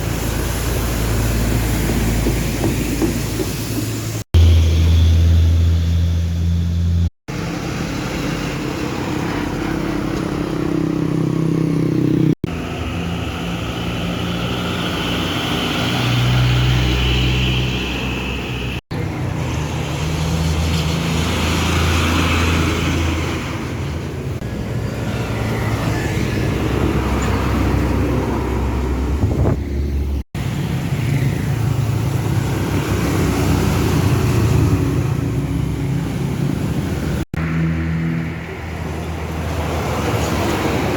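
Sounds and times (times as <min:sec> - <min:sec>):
truck engines running: 0:00.0 - 0:40.9.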